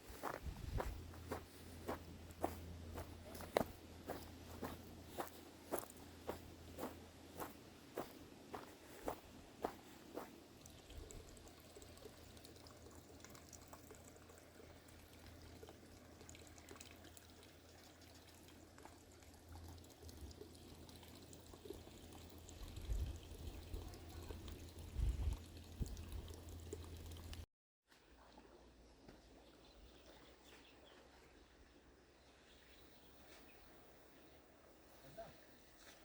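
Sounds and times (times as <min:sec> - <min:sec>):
stream trickling: 0:00.0 - 0:27.5.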